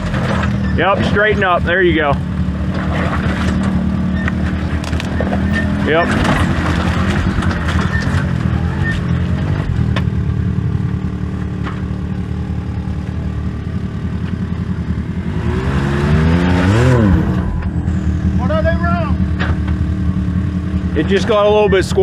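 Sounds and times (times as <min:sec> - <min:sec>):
off-road vehicle engine revving: 0:00.0 - 0:22.0.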